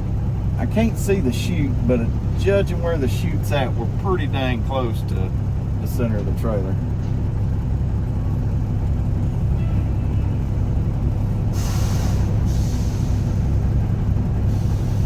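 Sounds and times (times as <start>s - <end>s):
diesel engine idling: 0.0s - 15.0s
air brakes hissing: 11.5s - 15.0s.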